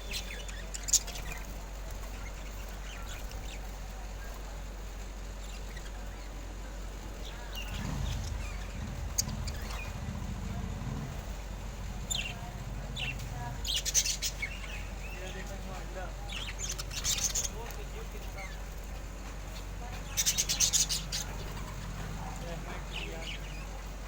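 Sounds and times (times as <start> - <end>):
steady low hum: 0.0 - 24.0
parrots squawking and chirping: 7.6 - 15.5, 16.2 - 18.6, 19.6 - 23.7.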